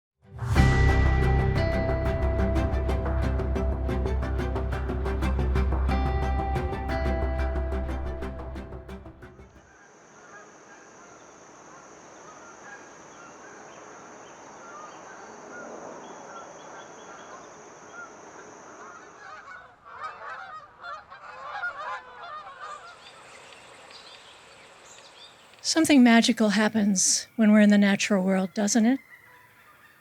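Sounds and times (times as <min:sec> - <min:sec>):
geese honking: 0:18.8 - 0:23.5, 0:25.6 - 0:30.0.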